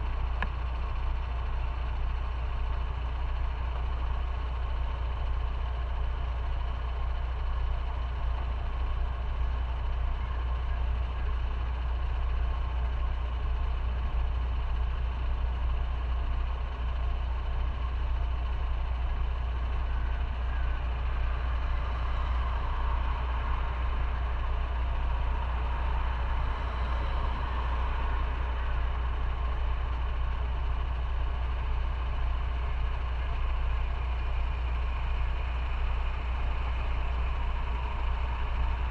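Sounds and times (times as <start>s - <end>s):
motorcycle engine running: 0.0s - 38.9s
other traffic: 14.6s - 38.9s.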